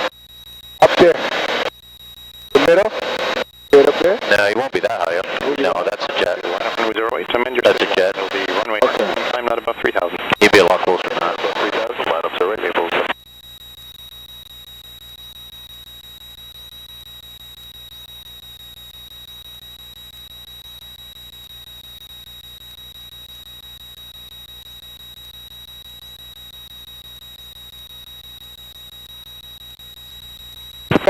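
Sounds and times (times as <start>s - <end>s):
faint aircraft engine drone: 0.7s - 14.2s.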